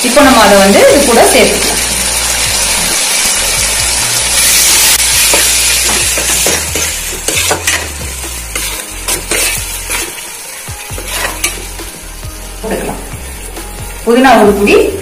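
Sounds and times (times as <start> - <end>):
food sizzling in hot oil: 0.0 - 15.0
spoon scraping a metal pan: 4.4 - 10.3, 10.9 - 11.8.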